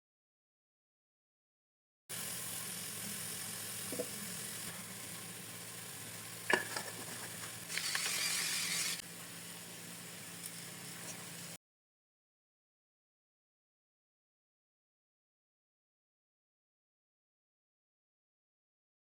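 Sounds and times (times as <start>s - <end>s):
food sizzling in a frying pan: 2.1s - 11.6s.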